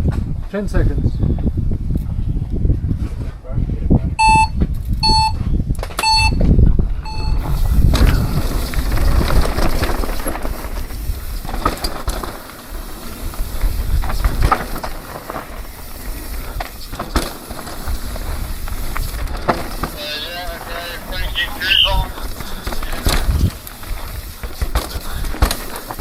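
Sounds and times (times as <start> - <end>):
wind buffeting microphone: 0.0 - 26.0
race start timer beeps: 4.2 - 5.4, 6.0 - 6.5, 7.1 - 7.6
bike knocking and rattling: 4.3 - 21.1, 22.1 - 26.0
tyres on dirt: 7.1 - 26.0.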